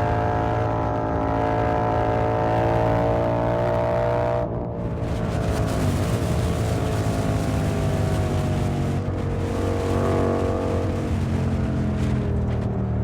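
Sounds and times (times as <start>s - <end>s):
motorcycle engine cruising: 0.0s - 13.0s
wind rushing past microphone: 4.6s - 12.5s.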